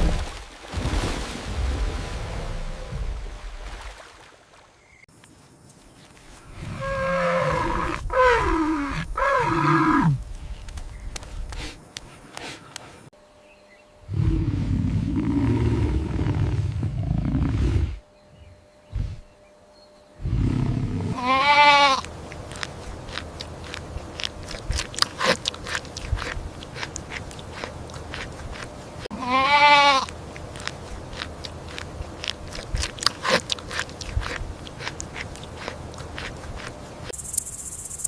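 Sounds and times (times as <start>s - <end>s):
loud low roar: 14.1s - 18.0s
goat bleating: 21.2s - 22.1s, 29.1s - 30.1s
chewing clicks and crunches: 22.0s - 28.8s, 30.0s - 37.5s.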